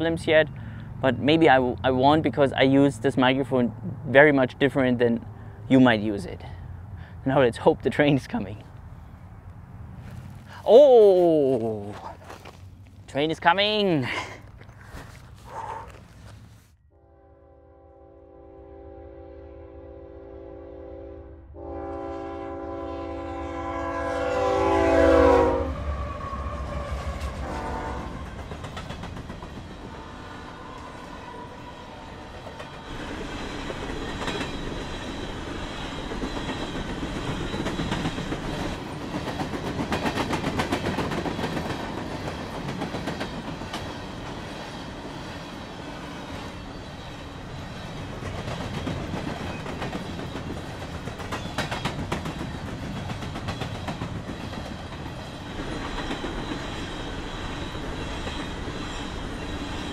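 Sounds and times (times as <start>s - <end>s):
locomotive air horn: 16.9s - 28.2s, 29.9s - 32.1s
freight cars rumbling past: 25.6s - 51.3s.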